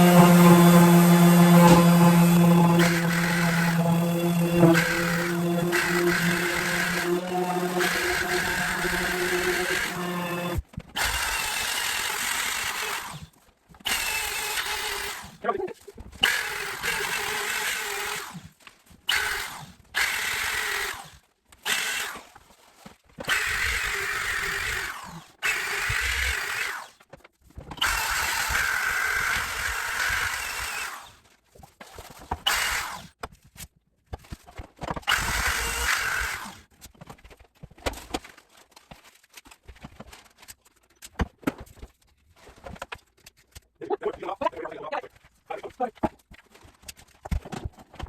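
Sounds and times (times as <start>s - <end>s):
electric sander humming on wood: 0.0s - 10.6s.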